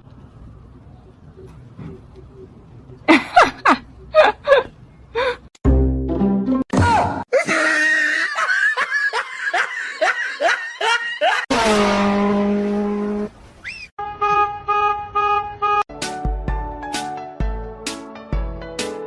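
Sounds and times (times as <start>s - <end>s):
laughter in rising bursts: 7.3s - 11.5s
music with melody and bass beat: 15.9s - 19.0s.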